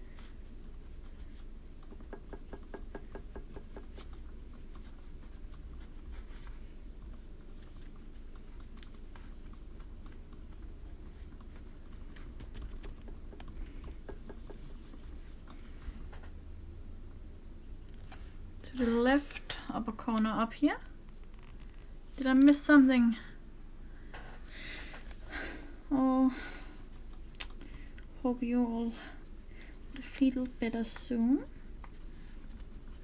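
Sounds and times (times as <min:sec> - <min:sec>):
brush tapping on paper: 0:01.2 - 0:06.5, 0:11.1 - 0:16.4.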